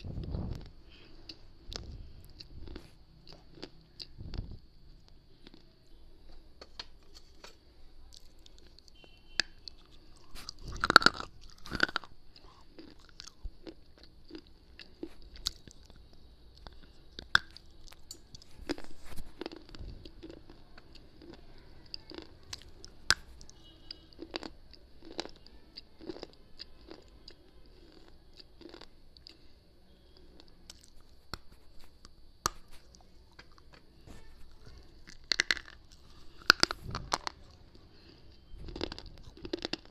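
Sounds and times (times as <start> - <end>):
crunching hard pieces in mouth: 0.0 - 5.7, 6.8 - 29.5, 30.1 - 33.8, 34.6 - 39.9.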